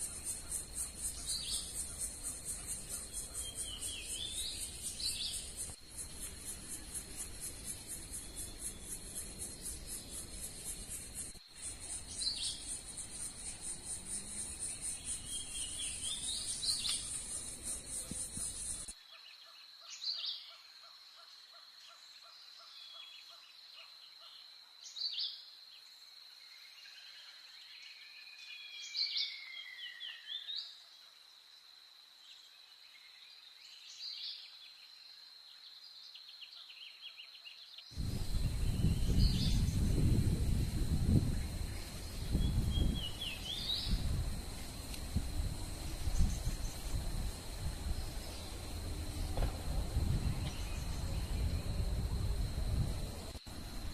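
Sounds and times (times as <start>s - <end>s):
insects trilling: 0.0s - 19.0s, 37.9s - 53.9s
sharp bird calls: 0.0s - 21.0s
background rumble: 38.0s - 53.9s.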